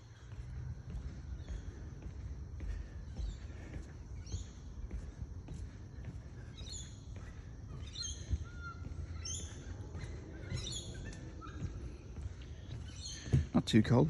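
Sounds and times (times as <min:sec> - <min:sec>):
birds short high chirping: 0:06.5 - 0:13.6.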